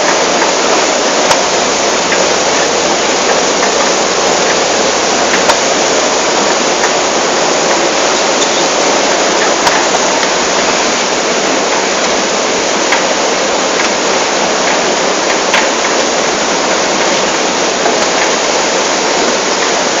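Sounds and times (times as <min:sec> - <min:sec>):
water rushing: 0:00.0 - 0:20.0.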